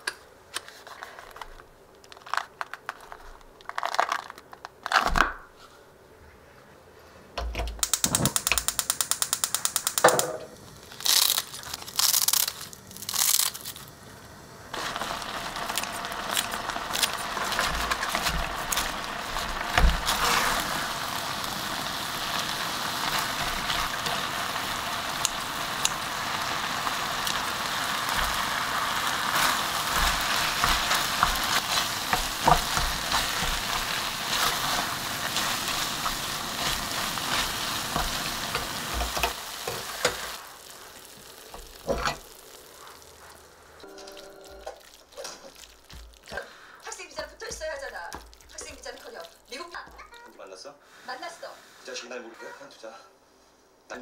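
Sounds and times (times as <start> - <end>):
cooking knocks and clicks: 7.4 - 10.6, 14.8 - 20.8, 21.8 - 40.4, 41.1 - 42.6, 44.6 - 46.4, 47.2 - 50.2
food sizzling in a pot: 7.8 - 50.3.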